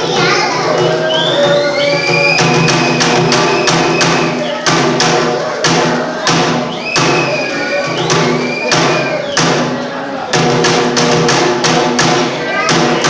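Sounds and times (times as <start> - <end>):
taiko drum beating: 0.0 - 13.0.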